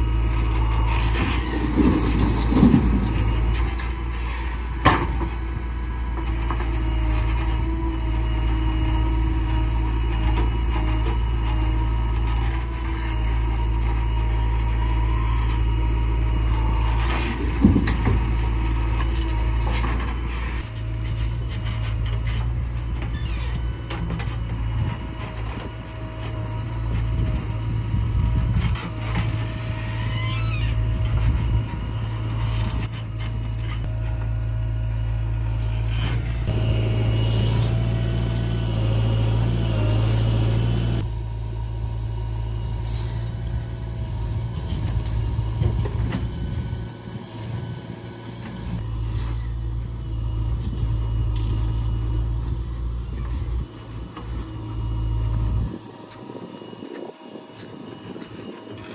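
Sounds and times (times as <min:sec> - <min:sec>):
heavy diesel engine running: 0:00.0 - 0:30.2, 0:30.8 - 0:58.9
faint squeals: 0:23.0 - 0:23.9, 0:29.2 - 0:31.6.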